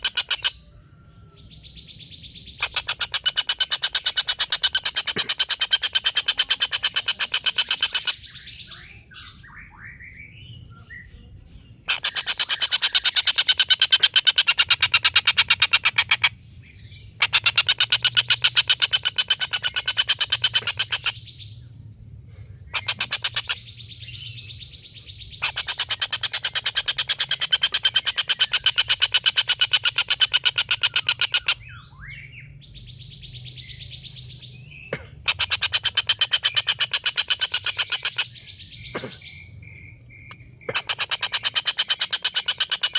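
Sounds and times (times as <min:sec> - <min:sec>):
softer bird calls: 0:00.0 - 0:42.9
kingfisher chatter: 0:05.2 - 0:08.2.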